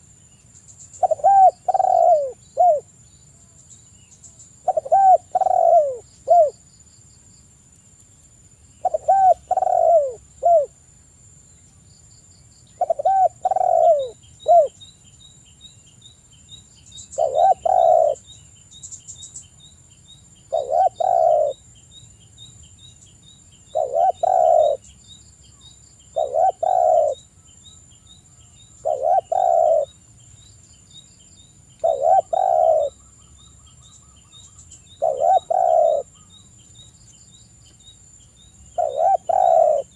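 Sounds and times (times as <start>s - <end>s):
dove cooing: 1.0s - 2.9s, 4.6s - 6.6s, 8.8s - 10.8s, 12.8s - 14.8s, 17.2s - 18.2s, 20.5s - 21.6s, 23.7s - 24.9s, 26.1s - 27.2s, 28.8s - 30.0s, 31.8s - 33.0s, 34.9s - 36.2s, 38.8s - 39.9s.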